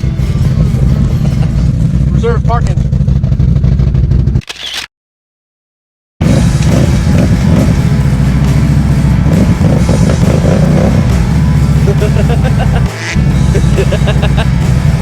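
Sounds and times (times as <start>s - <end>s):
off-road vehicle engine running: 0.0s - 4.5s, 6.2s - 15.0s.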